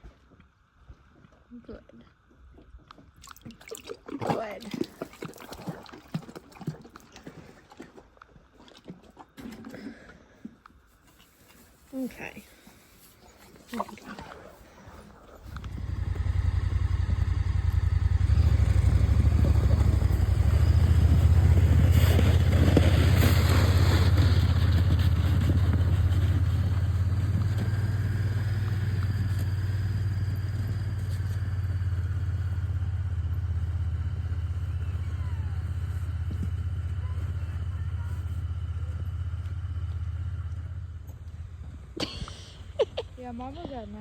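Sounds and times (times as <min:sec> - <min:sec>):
vehicle engine starting and running: 0:15.4 - 0:43.9.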